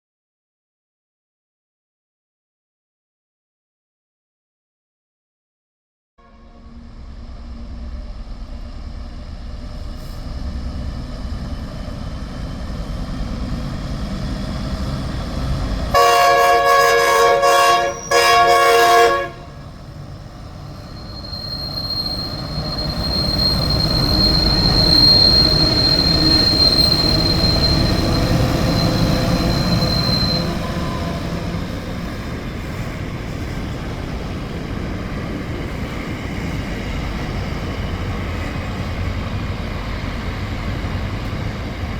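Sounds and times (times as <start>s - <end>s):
train horn blasts: 6.2s - 7.0s, 15.9s - 19.7s, 30.2s - 31.7s
train rumbling past: 6.2s - 41.9s
wheel squeal on rails: 20.6s - 33.0s.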